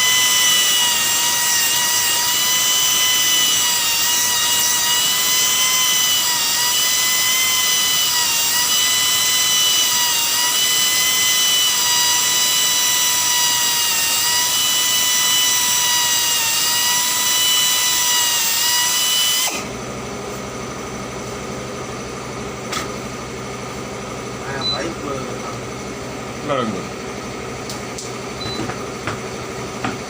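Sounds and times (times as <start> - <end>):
power tool whining: 0.0 - 20.8.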